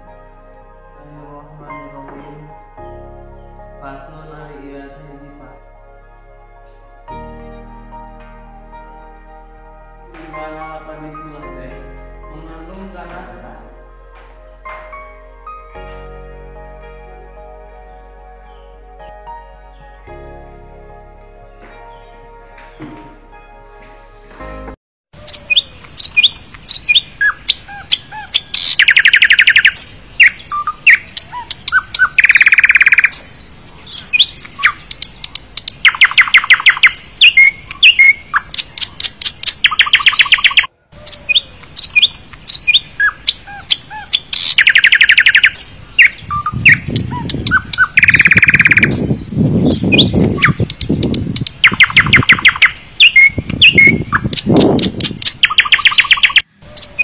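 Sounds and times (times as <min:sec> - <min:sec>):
birds chirping and trilling: 0:25.2 - 0:57.0.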